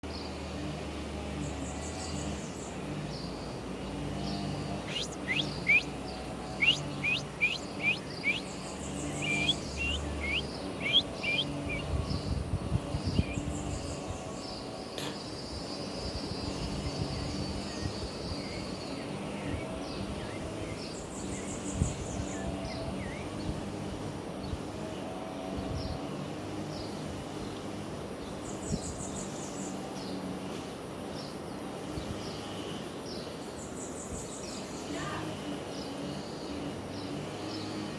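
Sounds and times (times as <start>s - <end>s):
birds chirping: 0.0s - 37.9s
bird trills: 4.3s - 12.1s.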